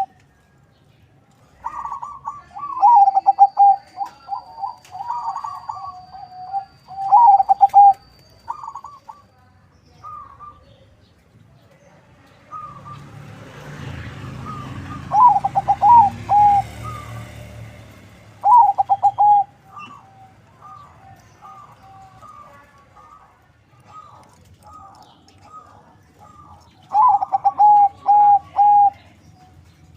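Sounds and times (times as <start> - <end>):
doves cooing: 0.0 - 0.2, 1.4 - 9.3, 14.2 - 17.6, 18.3 - 29.2.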